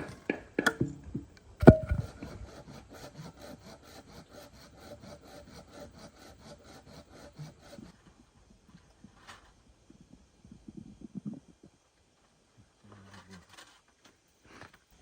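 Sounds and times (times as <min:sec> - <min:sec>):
hand saw cutting wood: 0:01.6 - 0:08.2.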